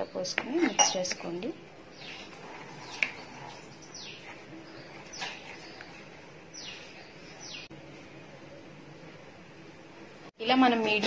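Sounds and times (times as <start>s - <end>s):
bird chirping: 0.0s - 7.7s.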